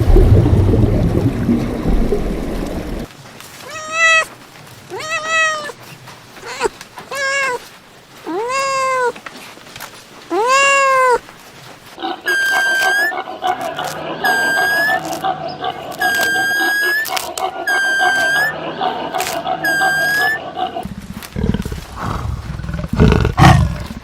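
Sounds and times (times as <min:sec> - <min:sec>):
drawn-out animal calls: 0:02.6 - 0:09.3, 0:10.3 - 0:24.0
higher steadier animal calls: 0:03.6 - 0:04.3, 0:04.9 - 0:09.2, 0:10.3 - 0:24.0.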